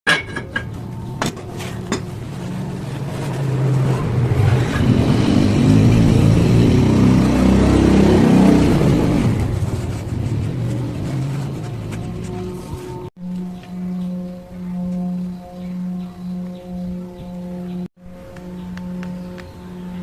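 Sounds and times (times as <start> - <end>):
burner fire roaring: 2.2 - 11.6.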